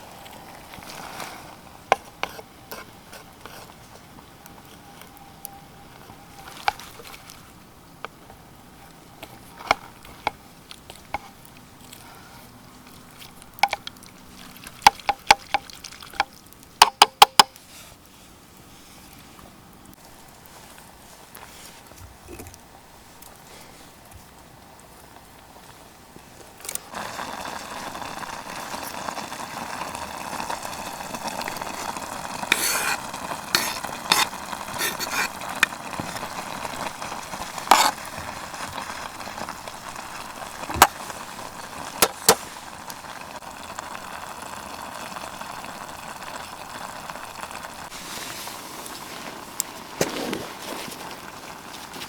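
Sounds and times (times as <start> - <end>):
food sizzling in a pan: 26.8 - 52.0
metal utensils clinking: 31.8 - 36.2.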